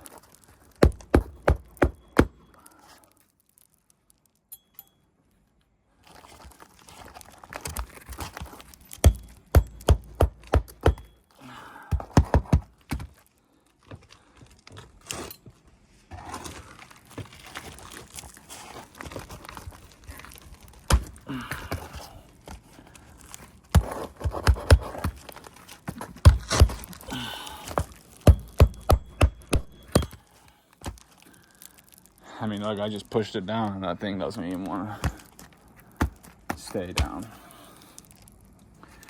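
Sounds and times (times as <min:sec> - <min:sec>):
shingles rustling and scraping: 0:00.0 - 0:04.5, 0:05.5 - 0:11.2, 0:12.0 - 0:39.0
sharp hammer strikes: 0:28.3 - 0:30.2.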